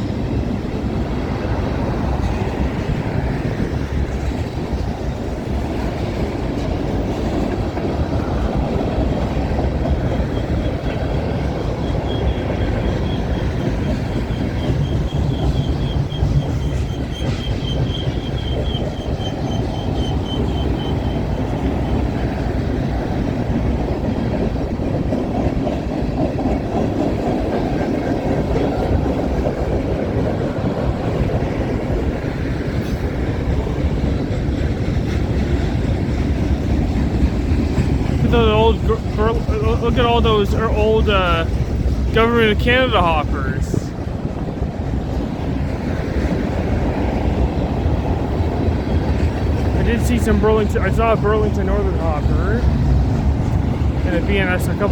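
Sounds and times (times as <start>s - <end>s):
freight train wheels clattering: 0.0s - 54.9s
high wheel squeal: 10.2s - 21.4s.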